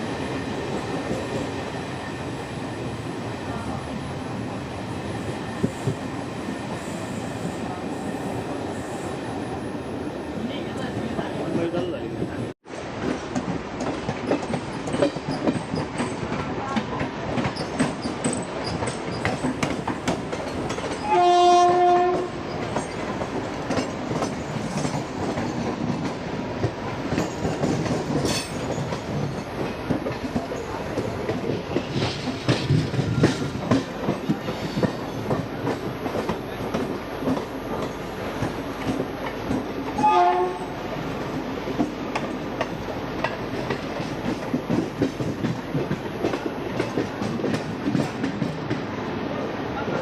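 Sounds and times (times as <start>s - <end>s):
train wheels clattering: 12.8s - 48.9s
train horn: 21.0s - 22.4s, 40.0s - 40.9s.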